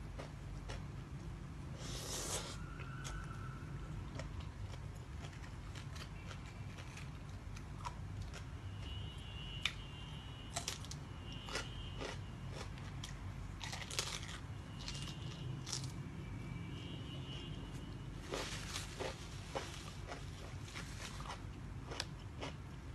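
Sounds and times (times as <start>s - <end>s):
crunching and chewing food: 0.0s - 9.8s, 10.5s - 16.0s, 17.7s - 22.9s.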